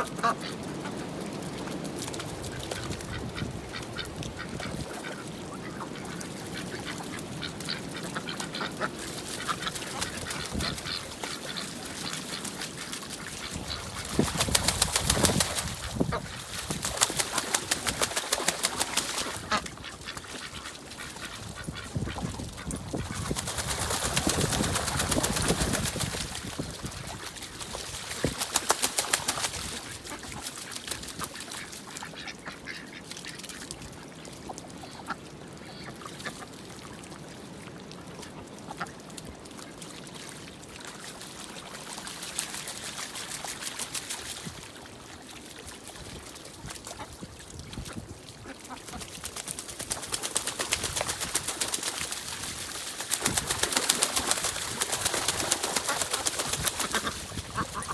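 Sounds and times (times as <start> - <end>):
ducks quacking: 0.0 - 1.0, 2.4 - 26.8, 27.7 - 33.6, 53.2 - 57.9.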